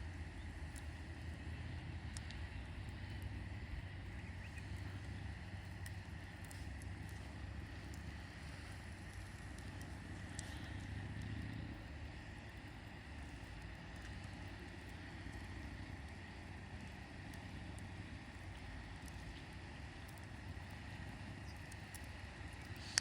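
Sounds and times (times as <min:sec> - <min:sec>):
campfire burning: 0:00.0 - 0:23.0
faint fire crackles: 0:00.0 - 0:23.0.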